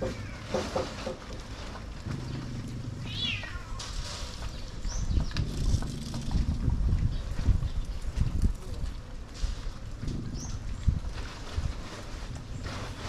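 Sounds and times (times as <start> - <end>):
low rumbling noise: 0.0 - 13.0
pet animal high-pitched cries: 3.0 - 3.9.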